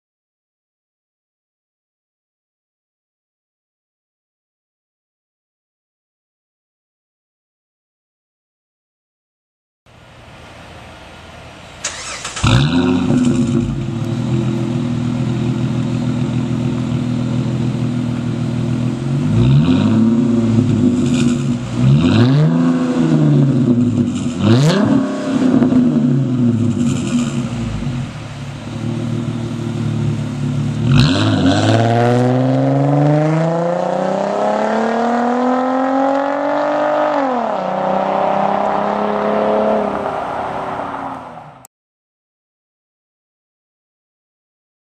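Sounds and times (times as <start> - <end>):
car engine idling and revving: 10.0 - 41.7.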